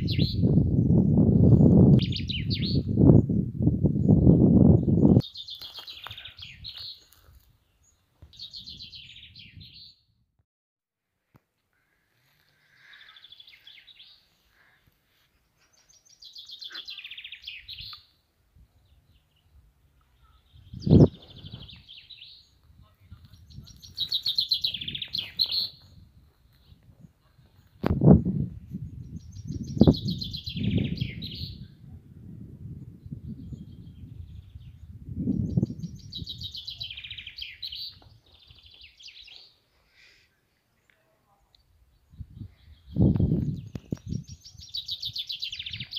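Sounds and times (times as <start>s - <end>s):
songbirds singing trills: 0.0s - 10.1s, 12.4s - 14.8s, 15.6s - 31.8s, 32.7s - 45.9s
faint bird chirps: 15.6s - 27.8s, 33.0s - 45.9s.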